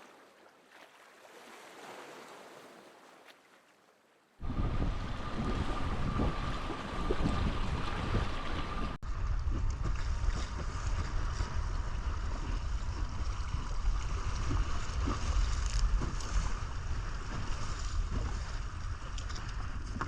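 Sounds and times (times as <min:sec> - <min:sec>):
wind buffeting microphone: 0:04.4 - 0:20.0.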